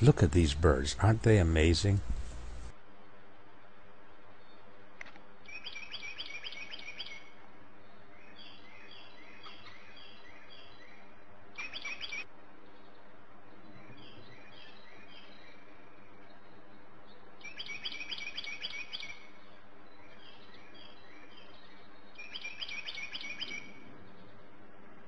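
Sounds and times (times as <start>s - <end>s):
steady background hiss: 0.0s - 25.0s
small birds chirping: 5.4s - 24.6s.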